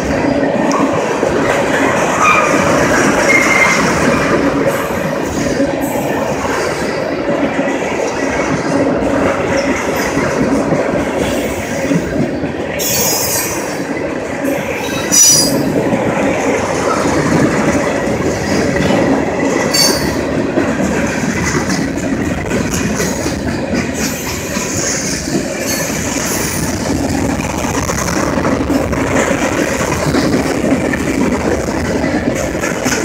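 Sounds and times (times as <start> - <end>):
freight train wheels clattering: 0.0 - 33.0
wheel squeals: 3.2 - 4.0.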